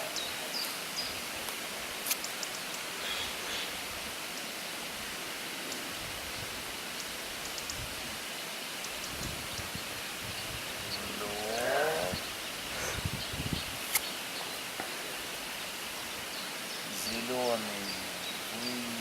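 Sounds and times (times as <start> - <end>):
sharp click: 13.9 - 14.1.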